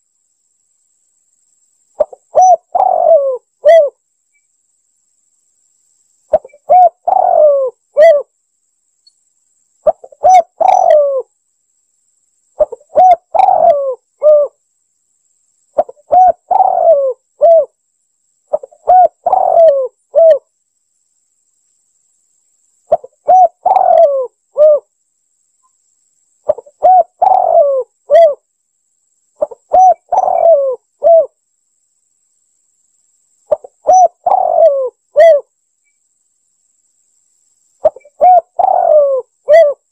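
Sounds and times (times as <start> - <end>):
dove cooing: 2.0 - 4.0, 6.3 - 8.3, 9.8 - 11.3, 12.6 - 14.6, 15.8 - 17.8, 18.5 - 20.4, 22.9 - 24.9, 26.5 - 28.4, 29.4 - 31.4, 33.5 - 35.5, 37.8 - 39.9.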